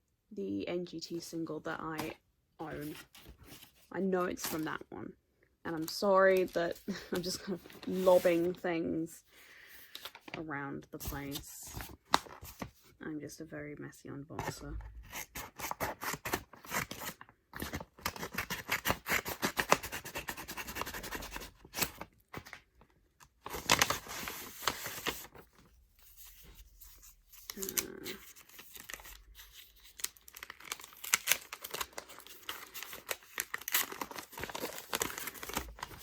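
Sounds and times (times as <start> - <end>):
packaging crinkling and tearing: 15.2 - 36.0.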